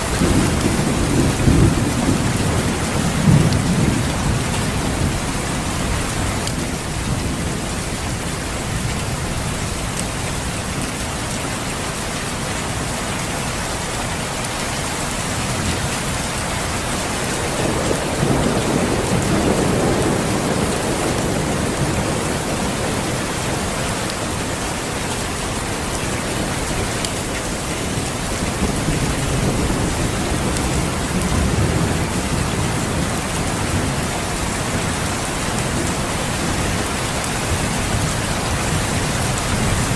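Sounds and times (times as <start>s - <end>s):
low rolling thunder: 0.0s - 9.0s, 15.5s - 24.7s, 27.5s - 39.9s
steady rain: 0.0s - 39.9s.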